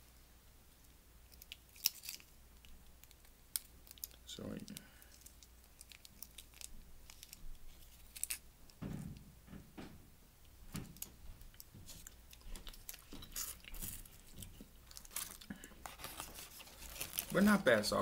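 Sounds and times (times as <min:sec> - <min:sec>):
wet chewing: 0:11.0 - 0:17.2.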